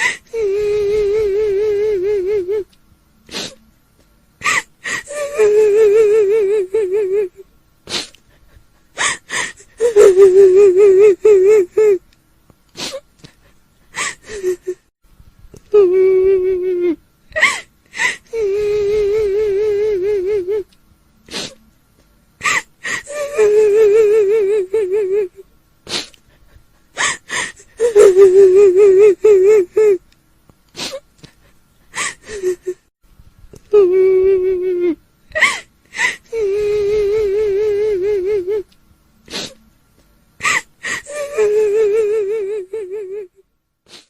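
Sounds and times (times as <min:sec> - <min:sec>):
woman sobbing: 0:00.0 - 0:02.7, 0:04.4 - 0:07.4, 0:08.0 - 0:12.0, 0:12.8 - 0:14.9, 0:15.7 - 0:20.7, 0:22.4 - 0:25.4, 0:26.2 - 0:30.0, 0:31.9 - 0:32.9, 0:33.7 - 0:38.7, 0:40.4 - 0:43.4
woman wailing: 0:04.4 - 0:07.4, 0:09.8 - 0:12.0, 0:22.4 - 0:25.3, 0:27.8 - 0:30.0, 0:33.7 - 0:35.6, 0:36.3 - 0:38.6, 0:40.4 - 0:43.3
woman gasping breaths: 0:08.3 - 0:09.7, 0:26.0 - 0:27.7
woman gasping: 0:09.0 - 0:09.9, 0:27.0 - 0:28.0.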